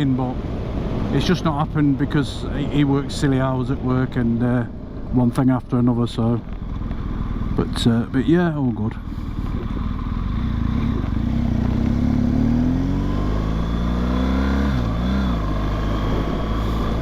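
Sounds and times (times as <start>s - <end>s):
motorcycle engine pulling: 6.0s - 17.0s
wind noise: 9.0s - 11.6s, 14.4s - 17.0s.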